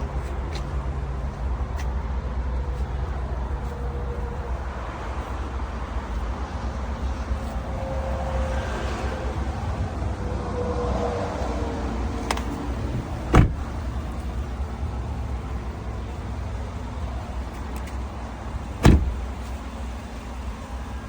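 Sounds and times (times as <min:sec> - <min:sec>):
pickup truck engine idling: 0:00.0 - 0:10.4, 0:11.3 - 0:21.0.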